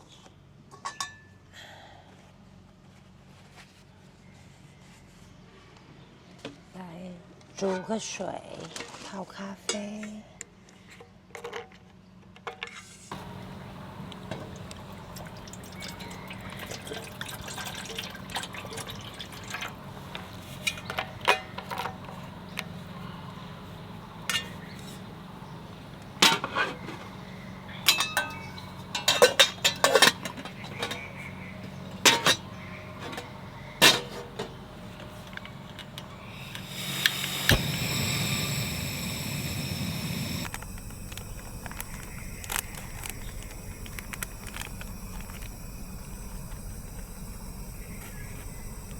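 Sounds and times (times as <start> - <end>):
loud rushing hiss: 13.1 - 17.6, 33.3 - 48.9
steady low hum: 13.1 - 48.9
water being poured: 14.4 - 19.8
clinks of metal and glass: 27.9 - 30.5.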